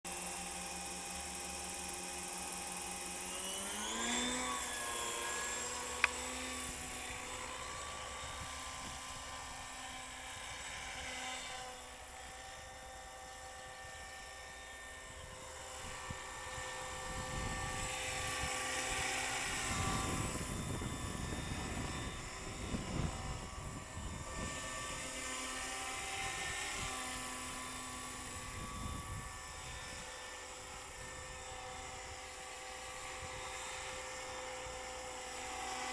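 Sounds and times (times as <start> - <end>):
model helicopter whine: 0.1 - 35.9
rushing rotor noise: 0.1 - 35.9.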